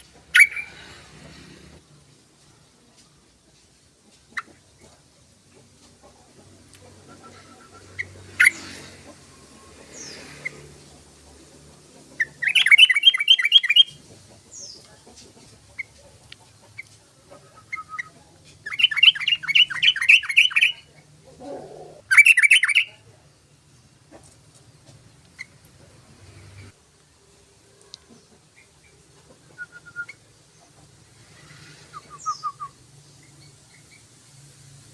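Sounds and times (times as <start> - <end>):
bird chattering song: 0.1 - 0.9, 12.0 - 15.0, 15.7 - 21.1, 22.1 - 23.0.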